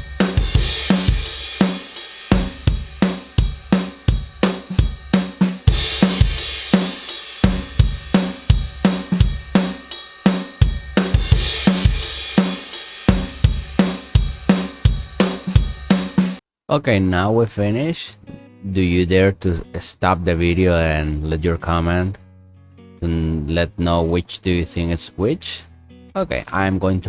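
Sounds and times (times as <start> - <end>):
drum kit groove: 0.0 - 16.4.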